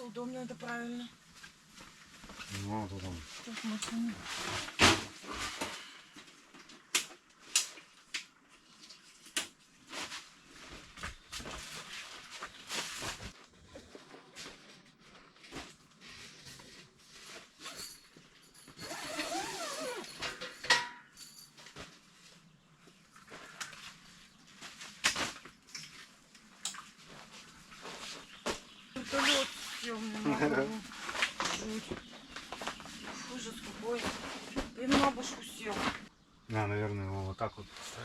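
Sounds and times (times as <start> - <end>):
scraping rustle: 1.1 - 6.1, 8.6 - 20.5, 26.9 - 36.1
camping gear knocks and clicks: 18.7 - 22.1.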